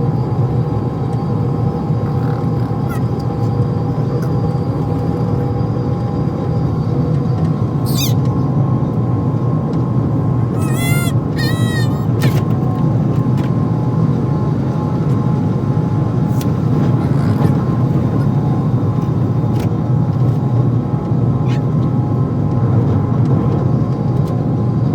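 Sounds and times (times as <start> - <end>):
train rumbling: 0.0 - 24.9
baby squealing: 2.0 - 3.2, 7.8 - 8.2, 10.5 - 12.5, 16.2 - 19.0.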